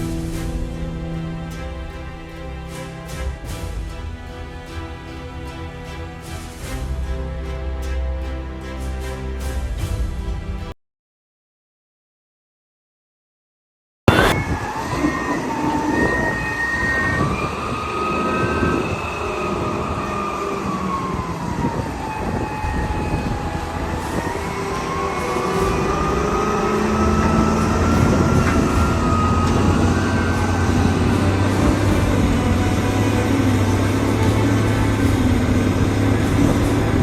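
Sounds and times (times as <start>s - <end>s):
train rumbling: 0.0s - 10.7s, 14.1s - 37.0s
high wheel squeal: 14.1s - 37.0s.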